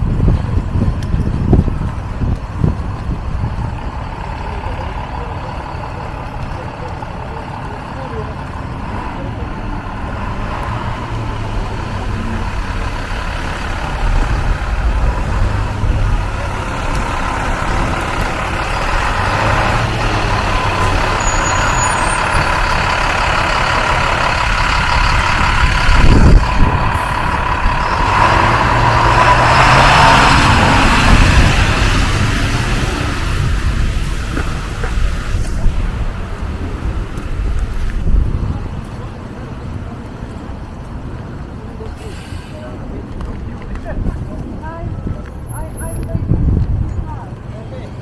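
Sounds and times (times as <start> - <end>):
street traffic: 0.0 - 48.0
truck engine running: 0.0 - 48.0.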